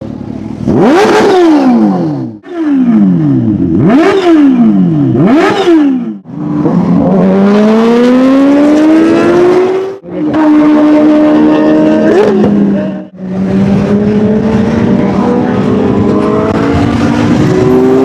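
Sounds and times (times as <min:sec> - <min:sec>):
motorcycle engine revving: 0:00.1 - 0:18.0.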